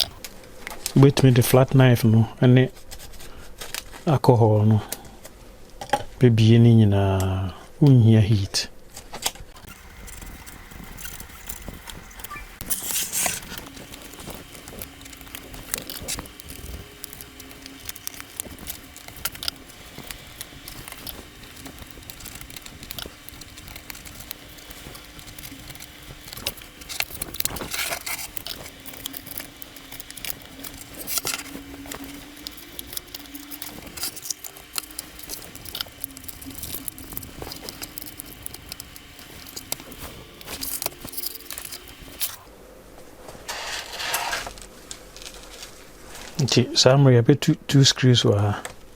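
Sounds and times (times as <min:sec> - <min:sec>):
repair tools clicking and scraping: 0:09.6 - 0:42.5.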